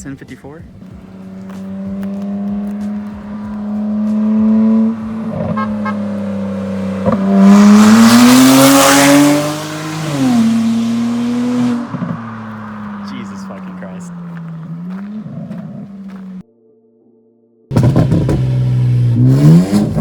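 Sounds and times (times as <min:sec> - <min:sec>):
loud car engine accelerating past: 0:00.8 - 0:16.4.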